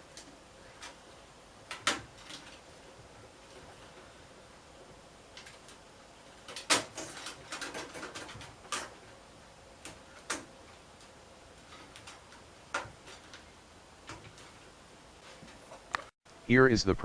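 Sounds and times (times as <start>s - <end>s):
computer parts clicking and knocking: 1.6s - 2.6s, 6.4s - 9.1s, 9.8s - 14.6s.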